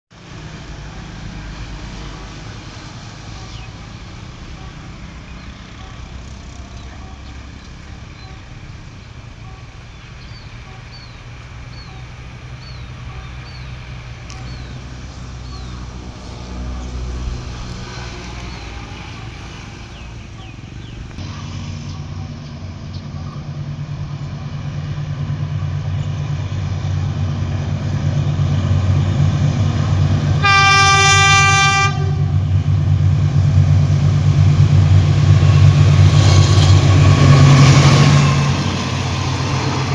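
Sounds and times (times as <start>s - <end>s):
locomotive engine rumble: 0.1s - 39.9s
locomotive horn blast: 0.9s - 21.2s, 30.3s - 32.7s.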